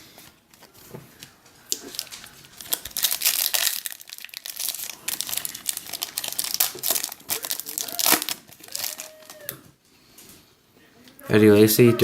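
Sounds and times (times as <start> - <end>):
wrapper crinkling and tearing: 0.5 - 9.6.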